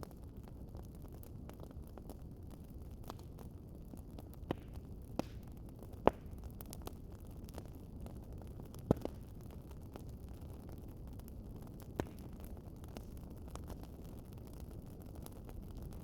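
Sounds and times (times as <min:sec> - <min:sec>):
wood fire crackling: 0:00.0 - 0:16.0
fire pops: 0:04.2 - 0:16.0.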